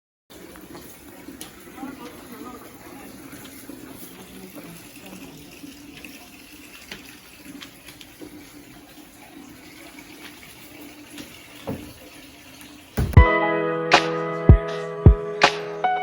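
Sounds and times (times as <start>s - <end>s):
water running: 0.3s - 13.2s.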